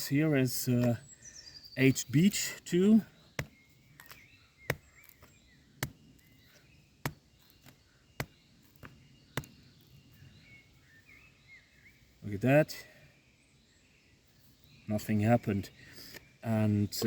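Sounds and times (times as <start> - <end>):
faint bird chirps: 0.0 - 17.0
knife chopping into wood: 3.4 - 9.6.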